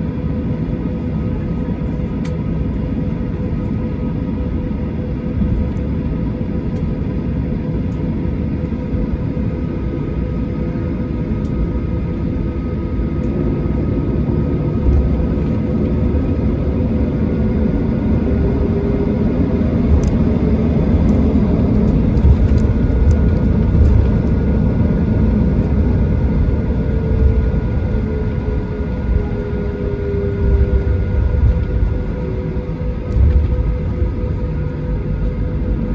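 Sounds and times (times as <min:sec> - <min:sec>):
jet engines rumbling in cabin: 0:00.0 - 0:35.9
faint whining tones: 0:08.3 - 0:35.9.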